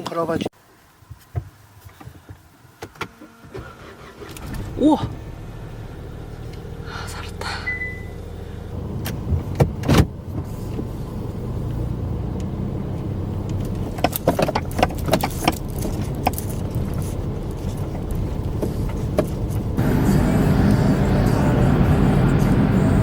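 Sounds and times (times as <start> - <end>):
car engine rumbling: 3.3 - 23.0.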